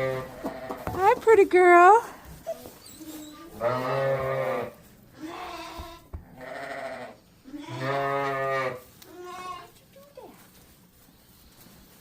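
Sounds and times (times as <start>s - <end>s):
livestock bleating: 3.5s - 9.7s.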